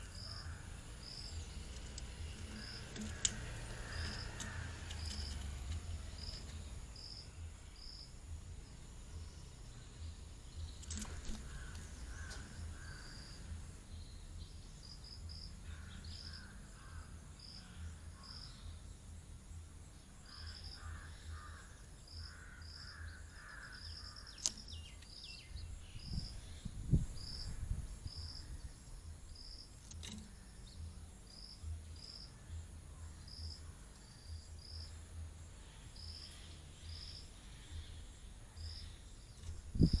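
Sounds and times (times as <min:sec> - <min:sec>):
lower bird calls: 0:00.0 - 0:08.2, 0:09.2 - 0:18.9
sharp click: 0:01.7 - 0:06.6, 0:10.8 - 0:12.6, 0:24.3 - 0:25.1, 0:29.8 - 0:30.4.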